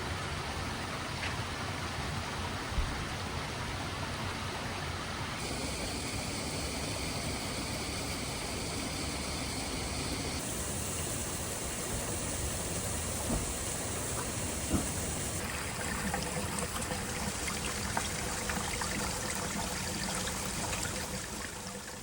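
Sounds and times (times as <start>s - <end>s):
flowing water rushing: 5.4s - 22.0s.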